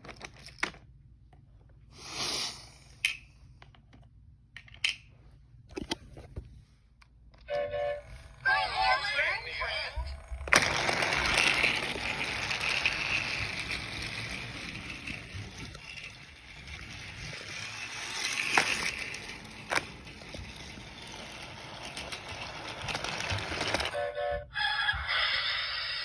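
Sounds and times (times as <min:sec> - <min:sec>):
toy train whirring rattle: 0:07.6 - 0:26.0.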